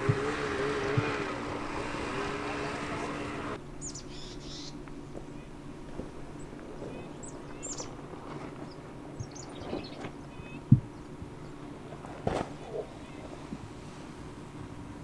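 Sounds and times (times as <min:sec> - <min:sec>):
faint low hum: 0:00.0 - 0:15.0
small birds chirping: 0:03.2 - 0:05.6, 0:06.3 - 0:11.6.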